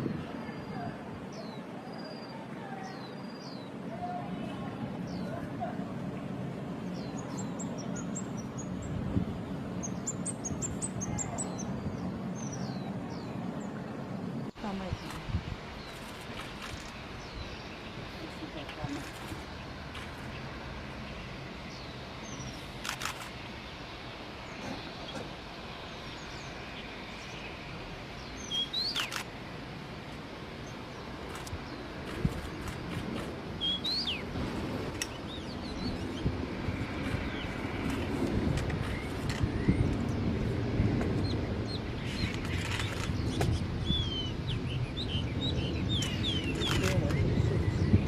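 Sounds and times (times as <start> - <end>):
outdoor background noise: 0.0 - 48.0
bird chirps and slurred notes: 28.2 - 29.3.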